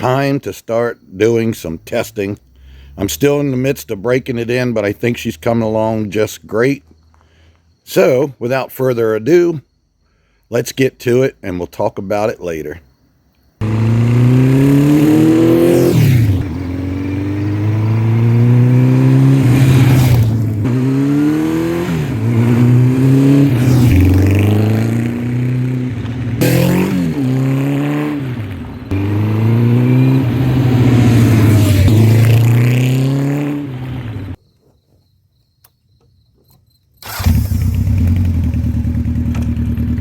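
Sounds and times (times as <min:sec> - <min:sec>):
motorcycle engine revving through gears: 0:13.6 - 0:34.4, 0:37.0 - 0:40.0.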